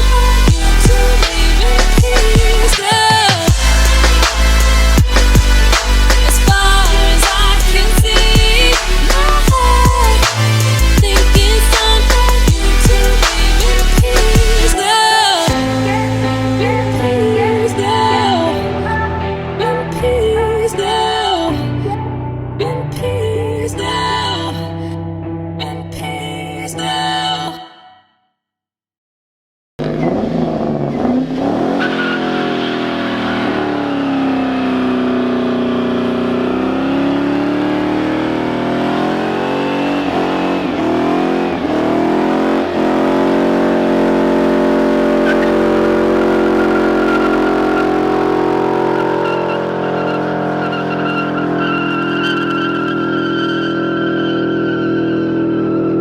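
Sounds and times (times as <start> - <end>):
car engine revving: 0.0 - 14.8, 29.8 - 56.0
tyres squealing: 31.6 - 33.8, 49.0 - 55.9.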